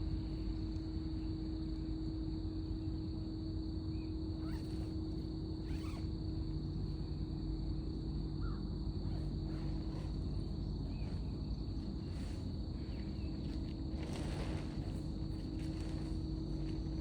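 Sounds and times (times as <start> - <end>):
rustle: 12.0 - 16.8.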